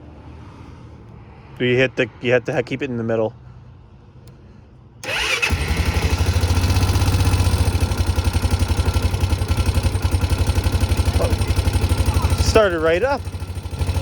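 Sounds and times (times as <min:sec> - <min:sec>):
electric starter cranking: 0:05.0 - 0:14.0
engine running at fast even beat: 0:05.8 - 0:14.0.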